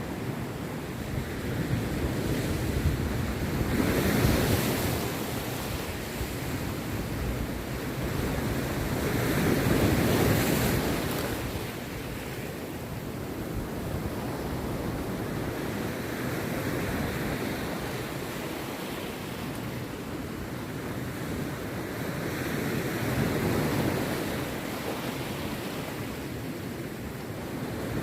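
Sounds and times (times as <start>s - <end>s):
sea waves breaking on beach: 0.0s - 28.0s.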